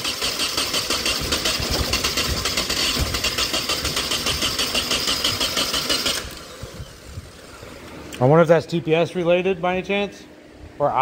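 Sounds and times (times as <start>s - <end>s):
car engine cranking on starter: 0.0s - 7.7s.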